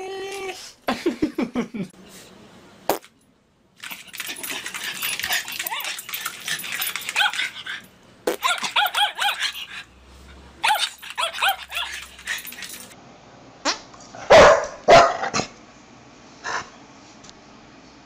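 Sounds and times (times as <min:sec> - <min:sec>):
small dog yapping: 0:06.9 - 0:09.8, 0:10.6 - 0:12.6.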